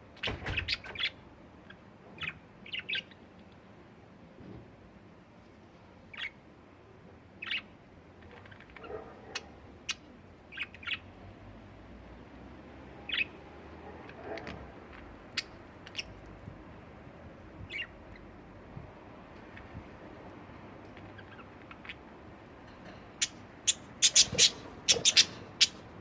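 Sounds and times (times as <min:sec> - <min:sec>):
budgerigars chirping: 0:15.3 - 0:16.2, 0:17.7 - 0:18.2, 0:21.1 - 0:22.1, 0:23.2 - 0:26.0.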